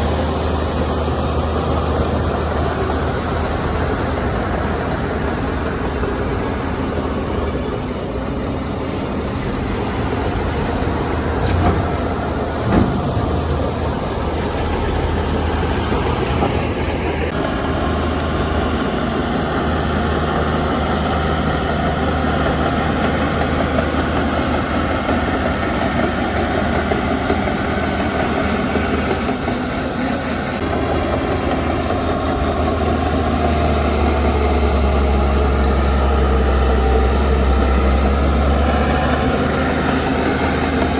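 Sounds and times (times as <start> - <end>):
heavy diesel machinery running: 0.0 - 40.9
metal clank: 11.0 - 16.6.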